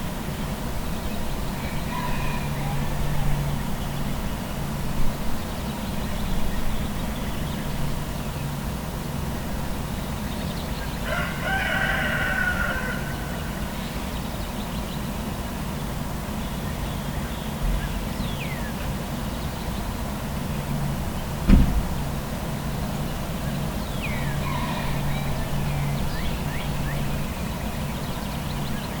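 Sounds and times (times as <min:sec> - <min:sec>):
low traffic rumble: 0:00.0 - 0:29.0
rooster crowing: 0:01.6 - 0:03.7, 0:11.0 - 0:13.6, 0:24.0 - 0:27.0.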